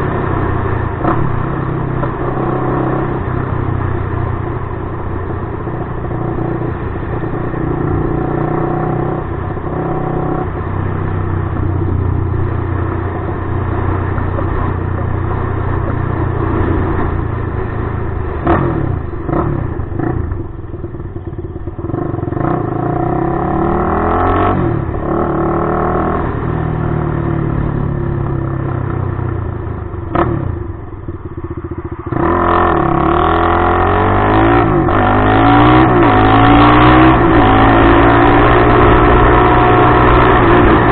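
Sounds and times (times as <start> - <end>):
engine revving: 18.4 - 20.5, 21.8 - 27.7, 32.0 - 40.9.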